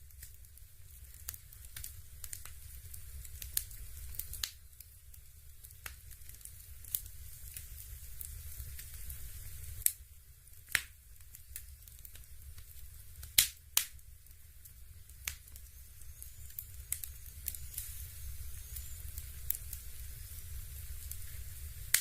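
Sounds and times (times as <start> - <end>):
electric fireplace crackles and pops: 0.0 - 22.0
faint hiss: 0.0 - 22.0
low steady hum: 0.0 - 22.0.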